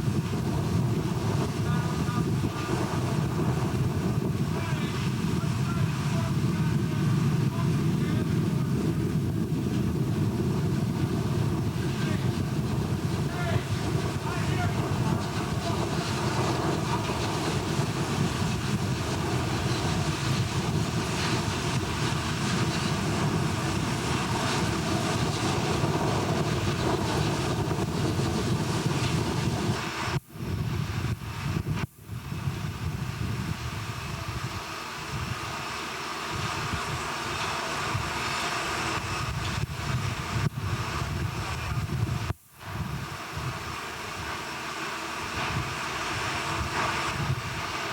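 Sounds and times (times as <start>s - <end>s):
heavy machinery drone: 0.0s - 30.2s.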